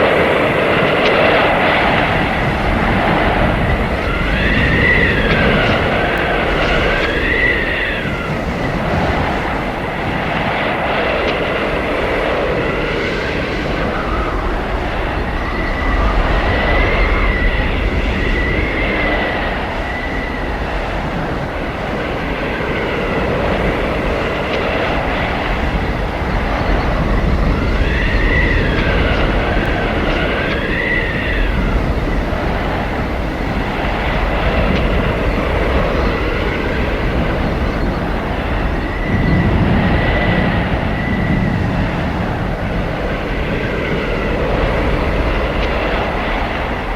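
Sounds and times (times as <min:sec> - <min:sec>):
howling blizzard wind: 0:00.0 - 0:46.9.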